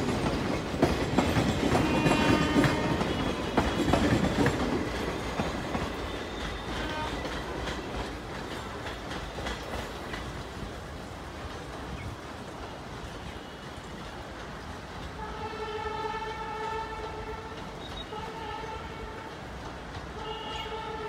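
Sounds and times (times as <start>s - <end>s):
train wheels clattering: 0.0s - 15.2s.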